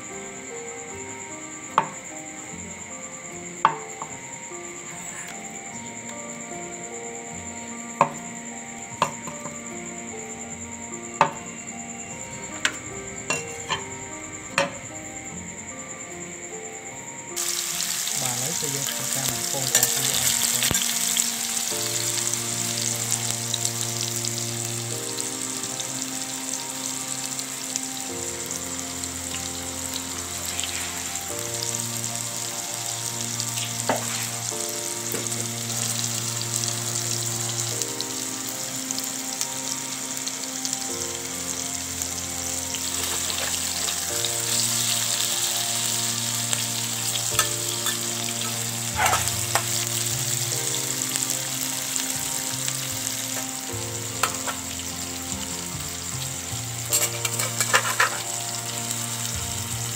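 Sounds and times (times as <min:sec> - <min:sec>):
soft background music: 0:00.0 - 0:59.9
tofu sizzling in hot oil: 0:17.4 - 0:59.9.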